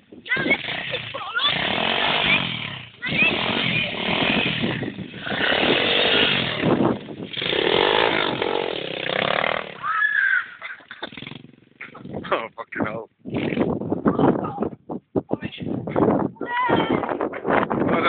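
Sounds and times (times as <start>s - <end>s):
small motorbike engine revving: 0.4s - 10.4s, 11.0s - 11.7s.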